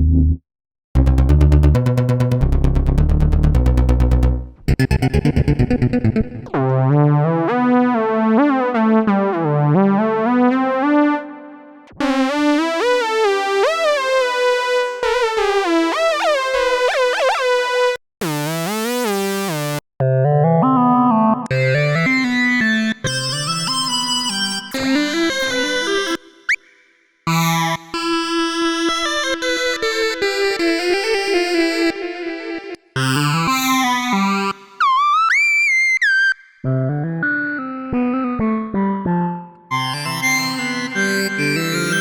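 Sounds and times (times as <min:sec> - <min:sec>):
pulsing synthesizer bass: 0:01.0 - 0:07.7
sliding synthesizer lead melody: 0:01.0 - 0:26.6, 0:27.3 - 0:30.5, 0:33.0 - 0:42.0
bright synthesizer chord: 0:39.7 - 0:42.0.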